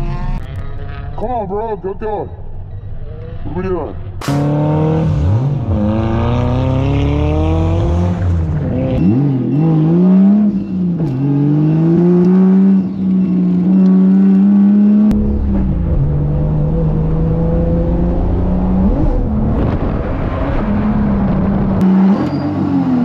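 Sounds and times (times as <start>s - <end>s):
car engine revving hard: 4.2s - 10.6s.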